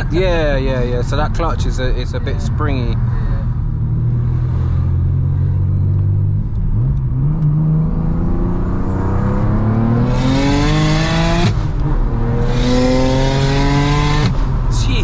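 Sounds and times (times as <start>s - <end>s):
car engine revving hard: 3.8s - 14.7s.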